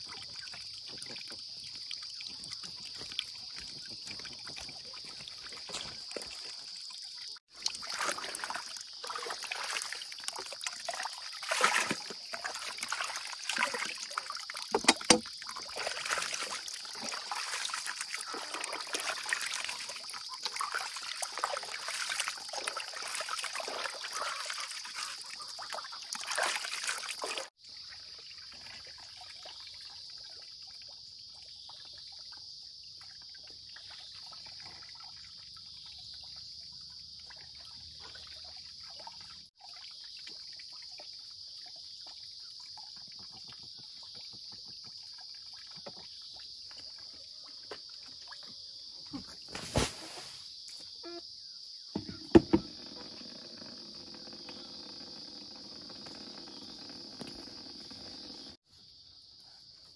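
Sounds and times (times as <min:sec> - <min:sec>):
water trickling: 0:00.0 - 0:48.9
high-pitched insect drone: 0:50.6 - 0:58.6.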